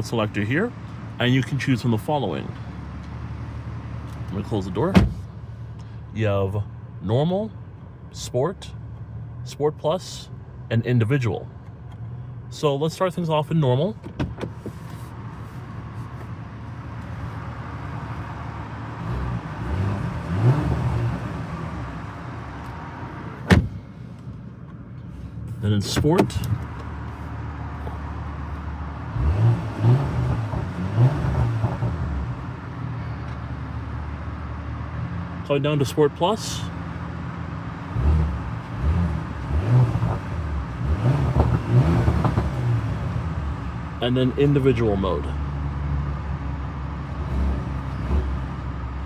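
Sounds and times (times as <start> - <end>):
car engine idling and revving: 0.0 - 49.0
car exhaust revving: 16.4 - 24.0, 26.3 - 32.8, 36.9 - 44.8.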